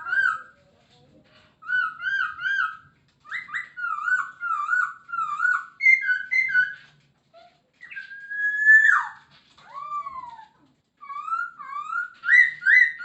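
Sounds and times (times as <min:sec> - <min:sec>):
bird whistled song: 0:01.6 - 0:06.9, 0:07.8 - 0:13.0.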